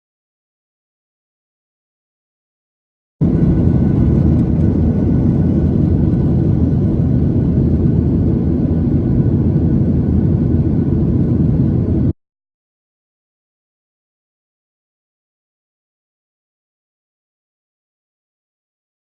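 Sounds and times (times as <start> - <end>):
jet engines rumbling: 3.2 - 12.2.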